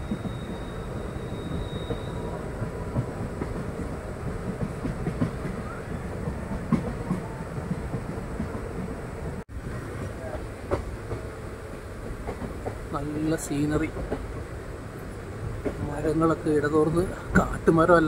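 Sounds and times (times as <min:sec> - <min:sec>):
train wheels rumbling on rail: 0:00.0 - 0:18.0
rail joint clatter: 0:12.0 - 0:16.2.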